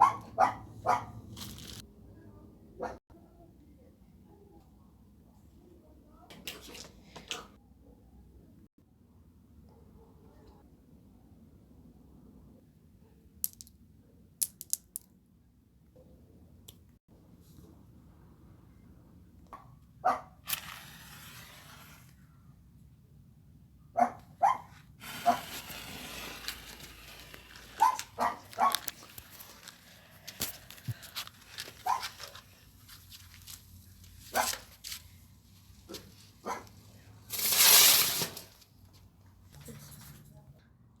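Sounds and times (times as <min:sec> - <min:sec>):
dog barking: 0:00.0 - 0:01.2, 0:02.8 - 0:03.0, 0:19.6 - 0:20.4, 0:24.0 - 0:25.4, 0:27.8 - 0:28.9, 0:31.8 - 0:32.2, 0:34.3 - 0:34.6, 0:36.4 - 0:36.7.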